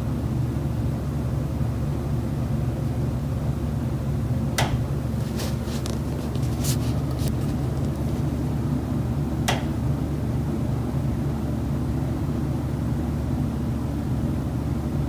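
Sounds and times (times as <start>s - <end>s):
steady low hum: 0.0s - 15.0s
knocking inside a wall: 9.4s - 9.8s.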